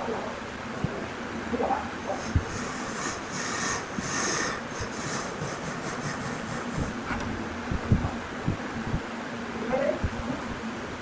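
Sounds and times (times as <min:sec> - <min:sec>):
wood rasping strokes: 0:02.0 - 0:07.2.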